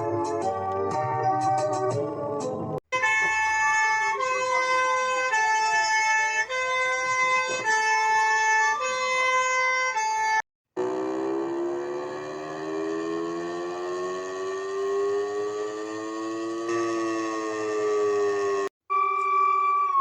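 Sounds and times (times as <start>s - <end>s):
wailing siren: 0.0s - 2.1s, 3.0s - 9.3s, 10.2s - 20.0s
two-tone hi-lo siren: 3.0s - 20.0s
rising siren: 10.8s - 20.0s.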